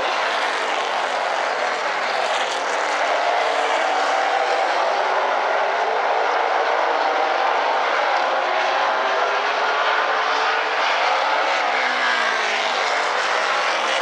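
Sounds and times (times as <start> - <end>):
race car engines running hard: 0.0 - 14.0.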